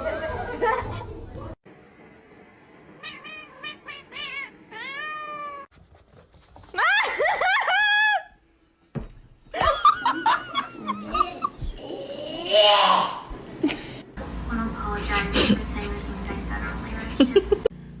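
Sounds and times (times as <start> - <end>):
cat meowing: 3.0 - 5.7.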